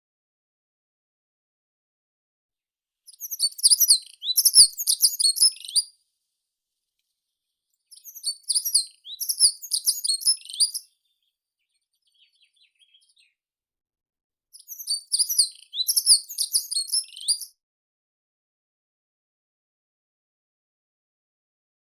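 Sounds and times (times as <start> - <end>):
songbird high chirping: 3.1 - 5.9, 7.9 - 13.4, 14.6 - 17.5
faint soft twitter: 3.1 - 6.0, 7.8 - 13.4, 14.6 - 17.6.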